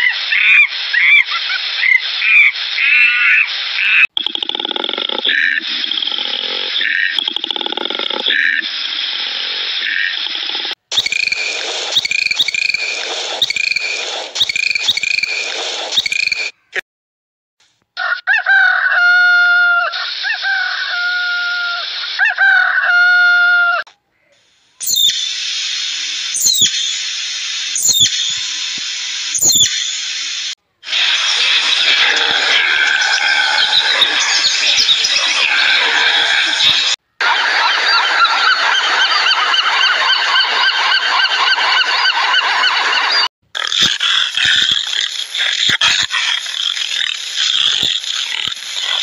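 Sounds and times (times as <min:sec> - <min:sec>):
hissy animal call: 0:00.0 - 0:04.1, 0:04.9 - 0:16.6, 0:24.2 - 0:37.0, 0:43.6 - 0:49.0
dolphin whistles and clicks: 0:10.9 - 0:16.6, 0:24.8 - 0:25.5, 0:26.3 - 0:30.2, 0:30.9 - 0:49.0
steady hiss: 0:24.4 - 0:32.9.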